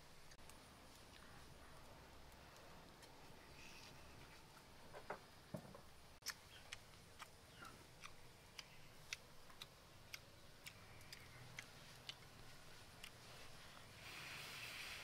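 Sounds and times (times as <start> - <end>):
chewing with mouth clicks: 6.2 - 13.6.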